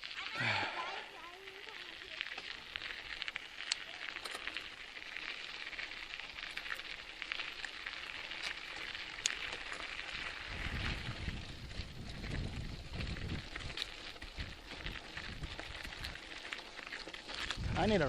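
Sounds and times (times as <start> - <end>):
bicycle tyres crunching on dirt: 0.0 - 18.0.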